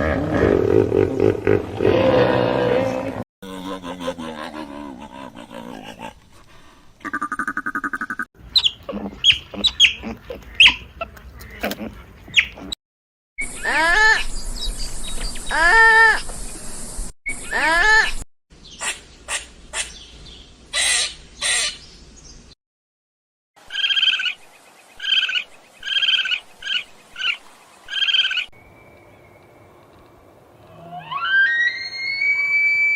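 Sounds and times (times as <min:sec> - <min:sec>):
long pitch-bending animal calls: 0:30.7 - 0:32.9.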